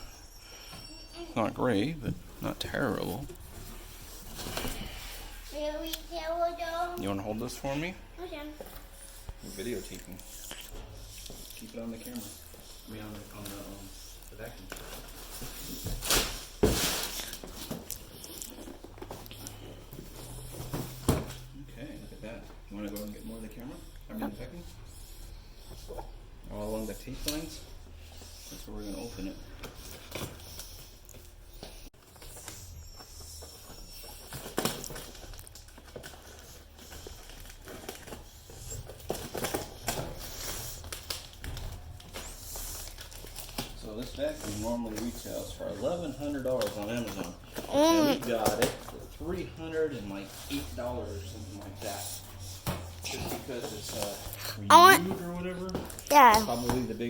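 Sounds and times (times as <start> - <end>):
cardboard and packing rustling: 3.0 - 5.4, 11.6 - 21.5, 52.6 - 57.0.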